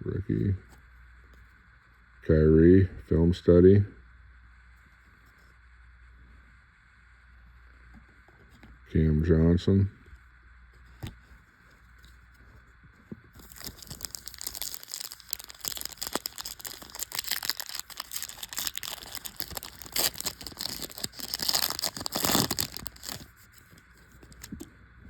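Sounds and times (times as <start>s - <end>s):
foil wrapper crinkling and tearing: 13.4s - 24.6s.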